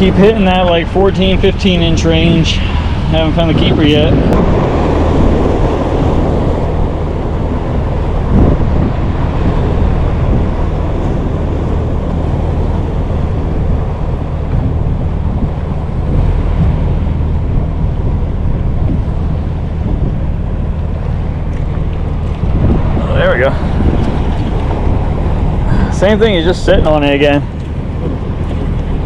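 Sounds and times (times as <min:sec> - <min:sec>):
water around boat hull: 0:00.0 - 0:29.0
wind buffeting microphone: 0:00.0 - 0:29.0.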